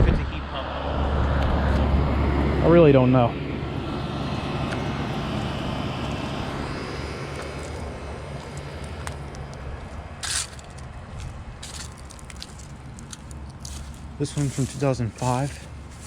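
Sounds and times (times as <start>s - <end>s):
short scuffing noise: 10.2s - 16.0s.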